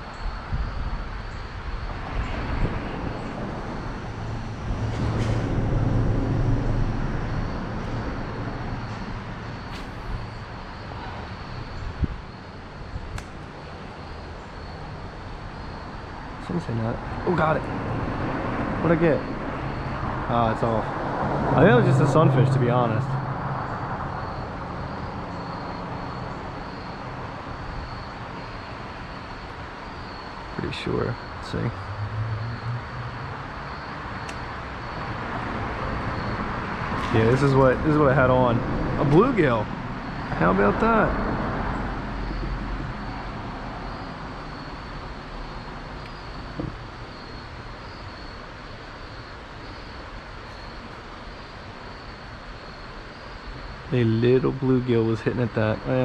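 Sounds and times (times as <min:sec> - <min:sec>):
brief knock: 0:09.7 - 0:10.2.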